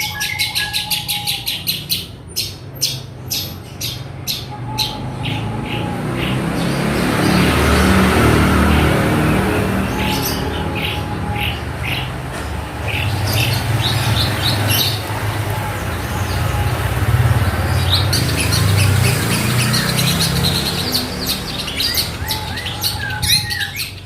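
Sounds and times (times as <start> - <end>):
bird chirping sharp notes: 0.0 - 24.0.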